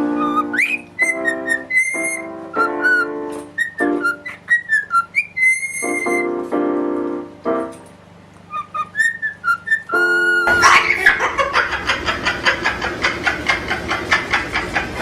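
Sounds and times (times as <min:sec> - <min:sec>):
gliding whistled notes: 0:00.0 - 0:06.3, 0:08.5 - 0:11.0.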